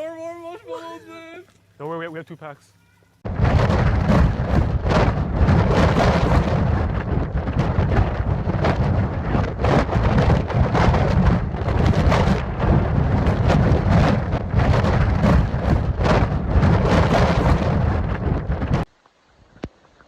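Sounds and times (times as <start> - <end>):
deep rumble: 3.3 - 18.9
sharp rain hits: 3.3 - 19.0.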